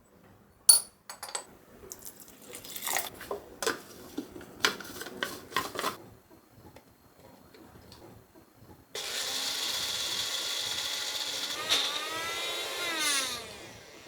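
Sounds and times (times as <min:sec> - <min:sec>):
blender motor winding down: 0:09.0 - 0:14.0
electric blender running: 0:09.0 - 0:14.0.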